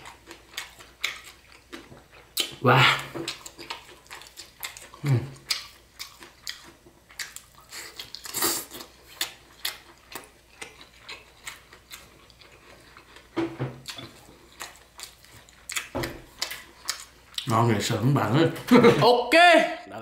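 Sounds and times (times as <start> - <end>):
chewing crispy noodles: 0.0 - 17.7.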